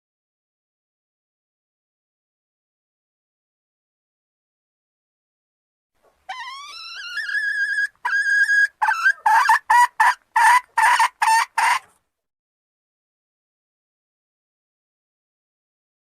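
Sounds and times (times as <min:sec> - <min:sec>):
junglefowl hen calling: 0:06.1 - 0:12.0.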